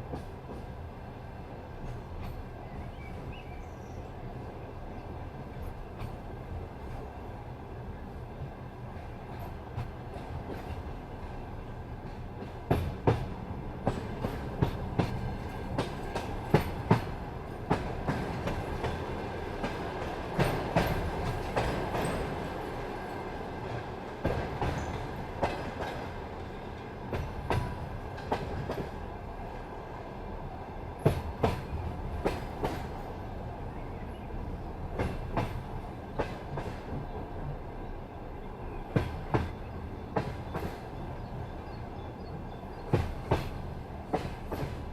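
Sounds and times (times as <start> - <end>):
train rolling rumble: 0.0 - 44.9
train wheels clacking over rail joints: 8.9 - 11.4, 12.0 - 29.1, 31.0 - 33.1, 34.9 - 37.2, 38.9 - 41.0, 42.8 - 44.9.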